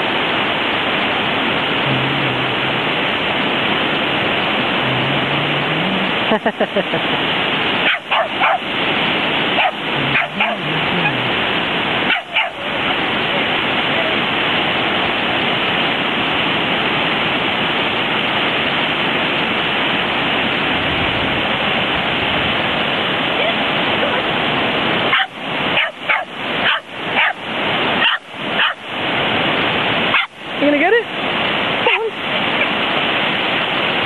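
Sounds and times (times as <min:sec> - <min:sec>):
ocean surf rushing: 0:00.0 - 0:34.0
dog barking: 0:07.8 - 0:08.7, 0:09.5 - 0:10.7, 0:12.1 - 0:12.8, 0:25.1 - 0:27.4, 0:28.0 - 0:28.8, 0:30.1 - 0:30.4.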